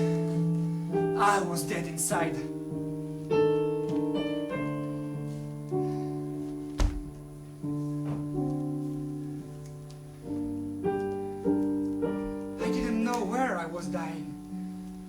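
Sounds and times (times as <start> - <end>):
slow piano chords: 0.0 - 15.0
thump: 6.8 - 7.2.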